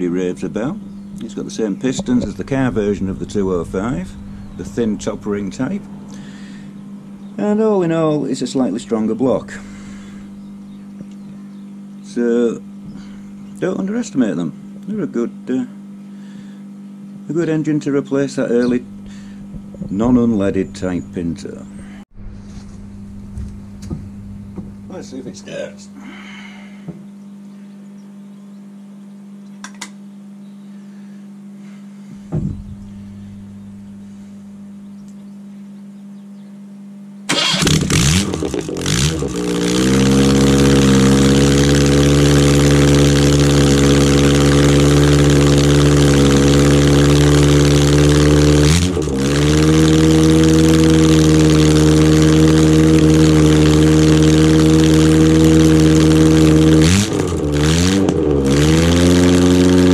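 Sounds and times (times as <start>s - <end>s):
car engine starting and running: 0.0s - 11.7s, 18.4s - 25.7s, 37.3s - 59.9s
low steady hum: 0.0s - 58.6s.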